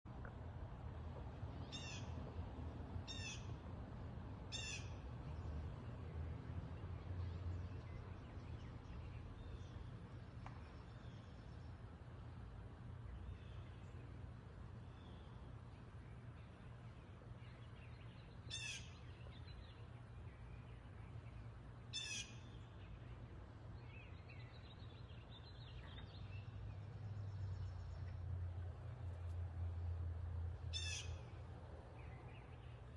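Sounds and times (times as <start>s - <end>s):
low steady hum: 0.1s - 32.9s
steady low rumble: 0.1s - 32.9s
wild birds calling: 1.6s - 2.2s, 3.0s - 3.6s, 4.5s - 5.1s, 14.8s - 28.3s, 30.6s - 32.9s
bird calling: 1.7s - 2.2s, 3.1s - 3.6s, 4.5s - 5.0s, 18.3s - 19.6s, 21.9s - 23.1s, 30.7s - 31.4s.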